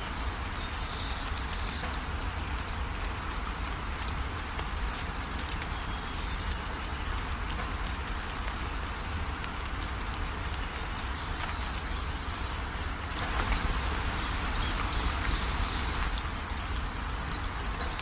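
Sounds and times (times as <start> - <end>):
rain falling: 0.0 - 18.0
birds chirping: 10.6 - 18.0.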